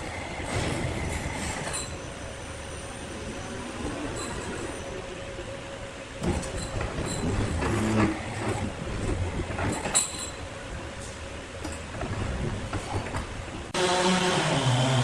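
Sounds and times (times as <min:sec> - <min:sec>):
sawmill machinery running: 0:13.8 - 0:15.0.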